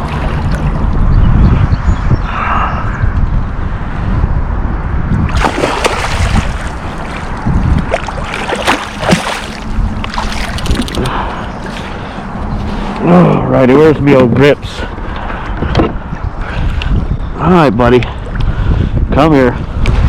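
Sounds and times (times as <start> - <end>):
fish thrashing at surface: 5.3 - 11.1
water sloshing against kayak: 5.4 - 12.2.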